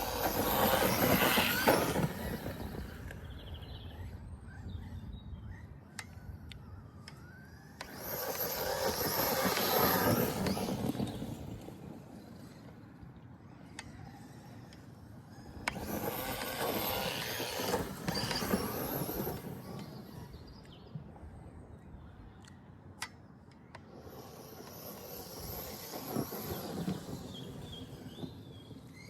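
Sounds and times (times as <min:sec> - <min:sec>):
rc truck motor whirring: 0:00.0 - 0:29.0.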